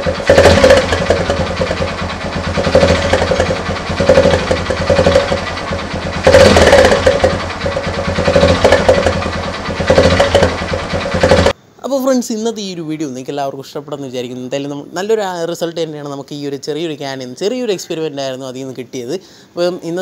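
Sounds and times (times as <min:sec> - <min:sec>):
motorcycle engine revving: 0:00.0 - 0:11.6.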